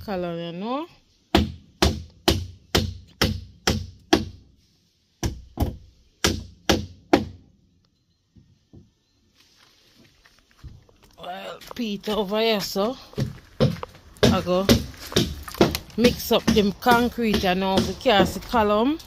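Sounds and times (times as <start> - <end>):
hammer striking wooden boards: 1.3 - 4.4, 5.2 - 7.4, 13.2 - 18.8.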